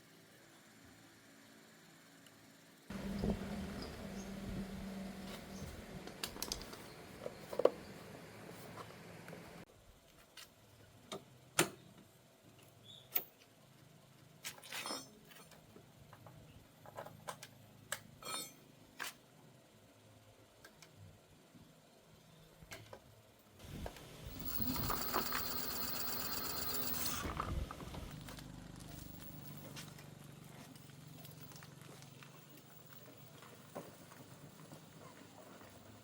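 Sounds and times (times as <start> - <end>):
small motor running: 23.6 - 29.6
small metal parts clicking: 24.3 - 27.2.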